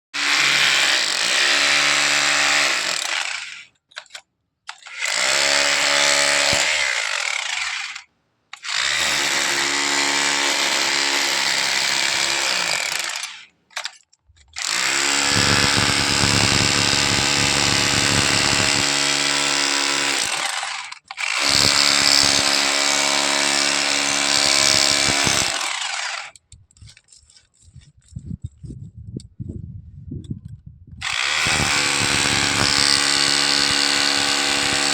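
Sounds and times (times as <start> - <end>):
power tool whining and grinding: 0.2 - 13.9, 14.5 - 26.4, 31.0 - 34.9.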